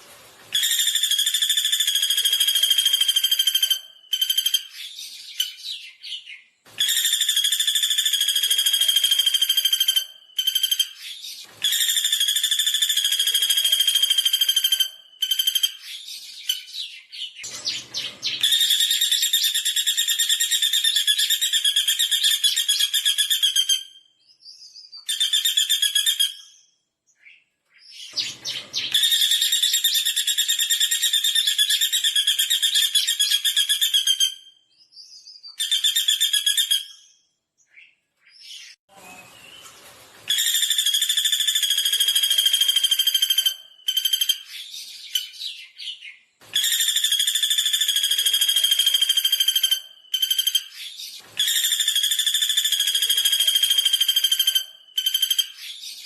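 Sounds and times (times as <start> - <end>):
woodpecker high-pitched trills: 0.6 - 5.8, 6.8 - 16.9, 17.7 - 24.0, 40.3 - 45.9, 46.5 - 56.0.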